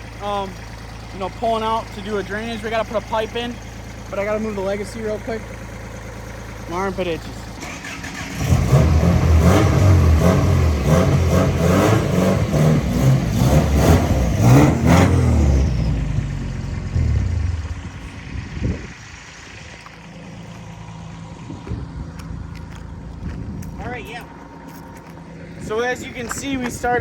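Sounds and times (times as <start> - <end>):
car engine revving: 6.3 - 23.1.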